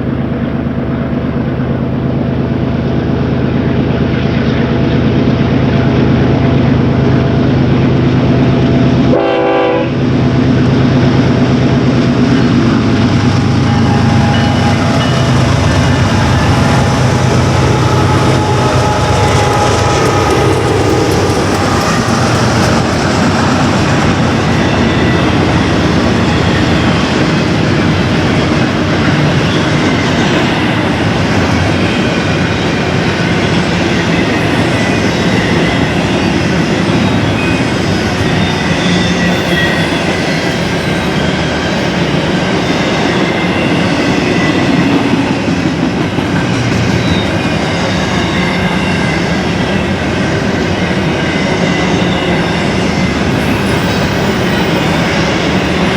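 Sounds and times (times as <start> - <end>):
diesel locomotive engines: 0.0 - 55.9
train cars rumble and wheel clatter: 0.0 - 55.9
train horn: 9.1 - 10.1, 13.3 - 26.8.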